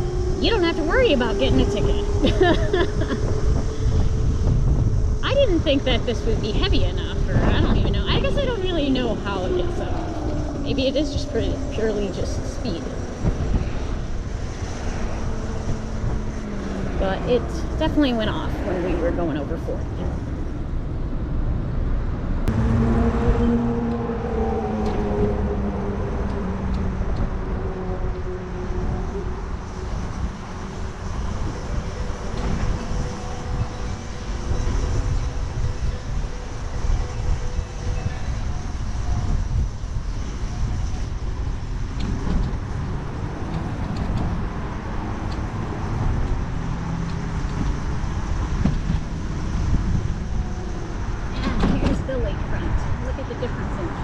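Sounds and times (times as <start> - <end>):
road noise: 0.0 - 54.0
vehicle hum: 0.0 - 54.0
wind buffeting: 0.0 - 54.0.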